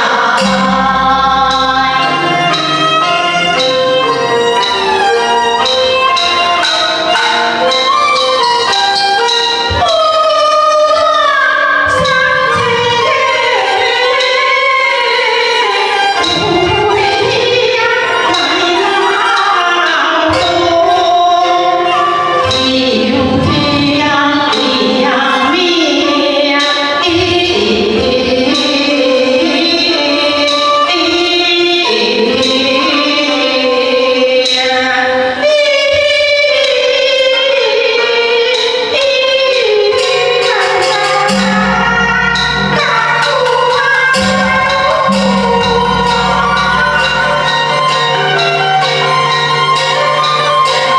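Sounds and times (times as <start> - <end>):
opera singing: 0.0 - 3.7, 9.7 - 49.2
fiddle: 0.0 - 10.1.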